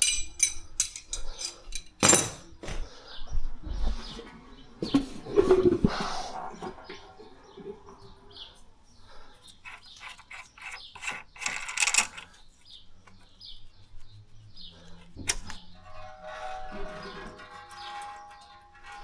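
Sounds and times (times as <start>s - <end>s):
hand tools clicking and rattling: 0.0s - 2.6s, 9.4s - 13.5s, 14.9s - 19.0s.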